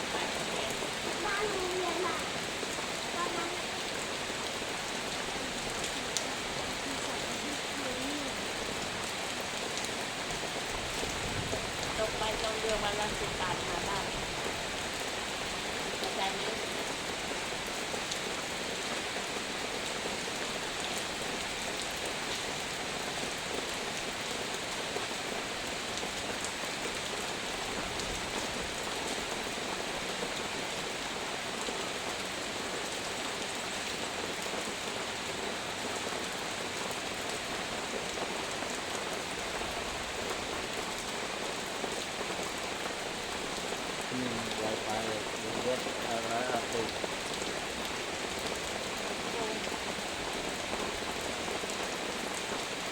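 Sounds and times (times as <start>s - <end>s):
raindrop ticks: 0.0s - 2.4s, 5.4s - 14.9s, 39.7s - 52.7s
heavy rain hissing: 0.0s - 52.9s.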